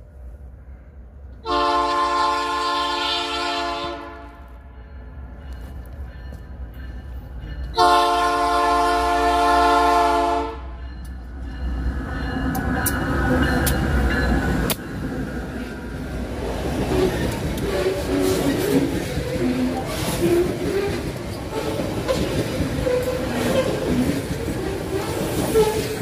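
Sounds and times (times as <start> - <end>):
locomotive air horn blast: 1.4 - 4.7, 7.8 - 10.8
wheels clicking over rail joints: 12.4 - 26.0.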